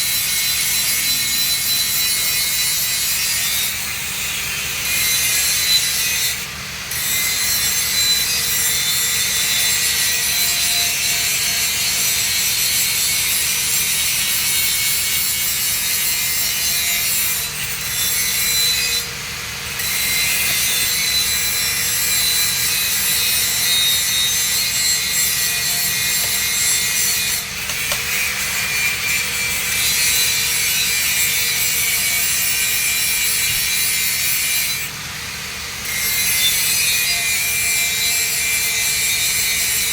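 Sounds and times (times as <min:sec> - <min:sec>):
welding arc sizzling: 0:00.1 - 0:39.9.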